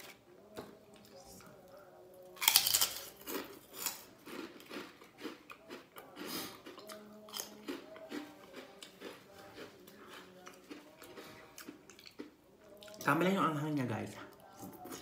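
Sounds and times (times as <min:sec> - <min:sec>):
crisp chip crunching: 0:02.3 - 0:12.3.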